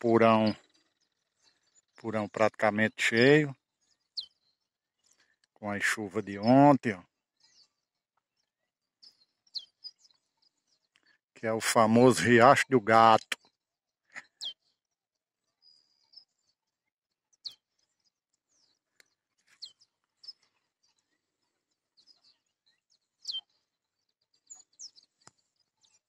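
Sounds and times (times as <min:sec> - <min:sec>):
high bird chirps: 0:00.0 - 0:05.5, 0:06.1 - 0:11.1, 0:11.8 - 0:14.8, 0:17.4 - 0:21.2, 0:21.9 - 0:26.0.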